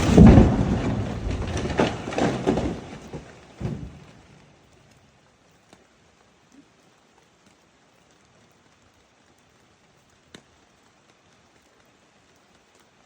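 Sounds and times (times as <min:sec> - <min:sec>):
faint steady hiss: 0:00.0 - 0:13.0
faint ticks: 0:04.7 - 0:13.0.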